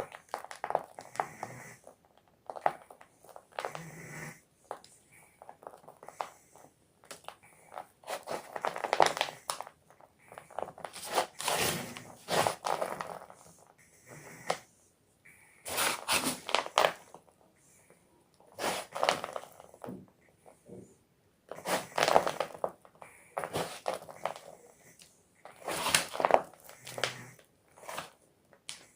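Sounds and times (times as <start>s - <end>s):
chalk block crunching: 25.4s - 28.8s.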